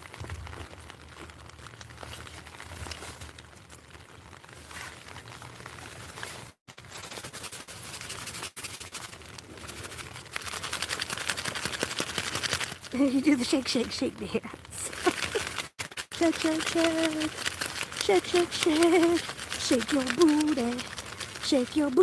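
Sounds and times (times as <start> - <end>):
irregular crackles: 0.0 - 22.0
plastic wrappers crinkling: 0.0 - 22.0.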